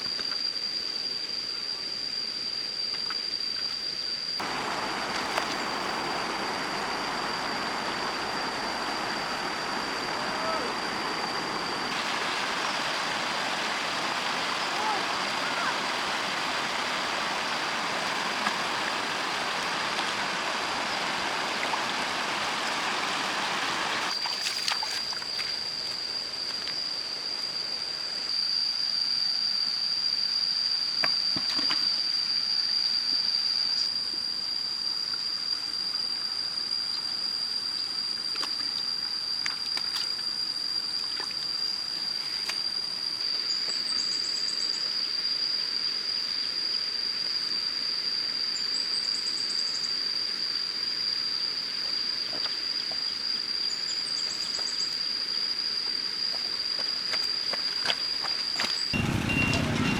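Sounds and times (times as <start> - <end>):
high-pitched whine: 0.0 - 59.9
stream water rushing: 4.4 - 25.3
quieter running water: 4.4 - 25.9.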